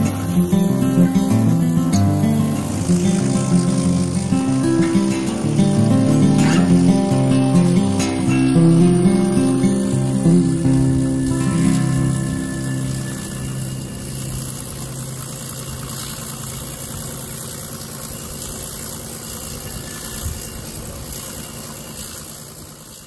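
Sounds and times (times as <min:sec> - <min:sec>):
acoustic guitar music: 0:00.0 - 0:17.7
train running noise: 0:00.0 - 0:23.0.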